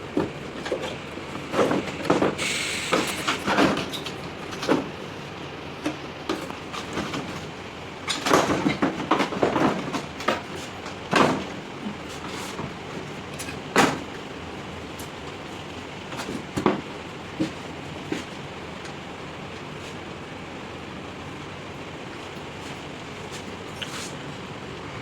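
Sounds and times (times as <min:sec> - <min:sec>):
steady background noise: 0:00.0 - 0:25.0
knocks and clatter of handling: 0:00.1 - 0:02.4, 0:03.0 - 0:05.0, 0:05.8 - 0:14.3, 0:16.0 - 0:19.8.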